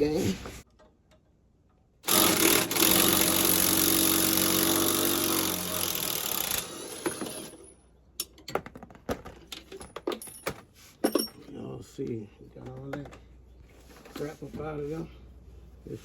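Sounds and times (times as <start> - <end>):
impact wrench buzzing: 2.0 - 7.7.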